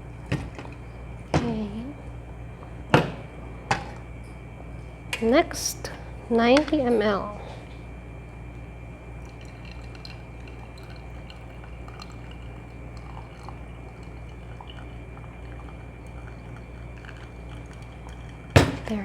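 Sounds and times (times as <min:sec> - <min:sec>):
hot water pouring from kettle: 0:09.2 - 0:18.8.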